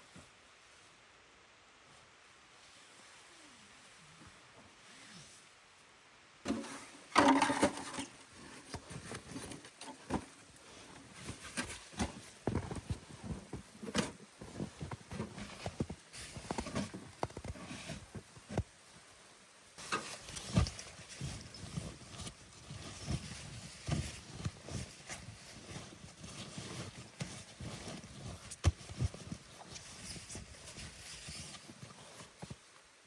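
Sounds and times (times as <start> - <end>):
scraping rustle: 6.5 - 19.1, 19.7 - 33.0.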